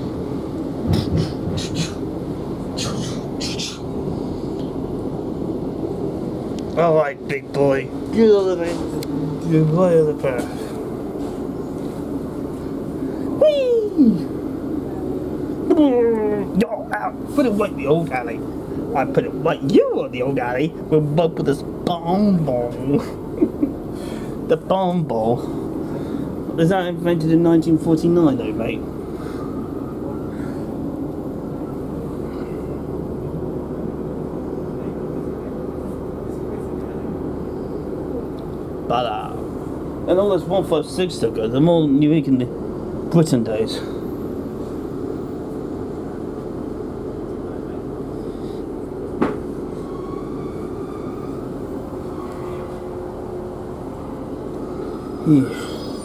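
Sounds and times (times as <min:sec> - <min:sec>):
low hum: 0:00.0 - 0:43.1
faint steady whine: 0:00.0 - 0:56.0
train drone and rumble: 0:00.0 - 0:56.0.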